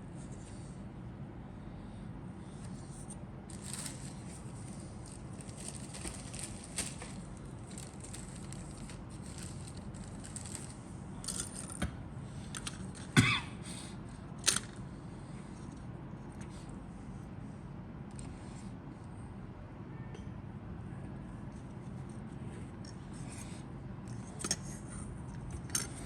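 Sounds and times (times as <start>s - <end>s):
low background hum: 0.0s - 26.0s
plastic parts rustling and clicking: 2.6s - 11.8s, 12.4s - 13.2s, 14.4s - 14.8s, 25.5s - 26.0s.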